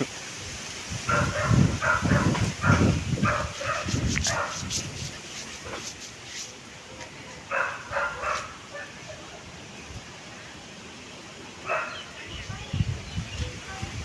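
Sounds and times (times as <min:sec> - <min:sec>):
dog barking: 0:01.1 - 0:04.7, 0:07.5 - 0:09.1, 0:11.6 - 0:12.1.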